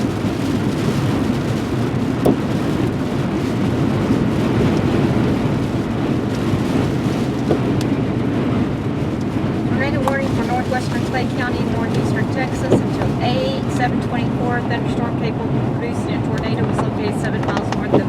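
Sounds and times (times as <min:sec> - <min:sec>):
road and wind noise in car: 0:00.0 - 0:18.0.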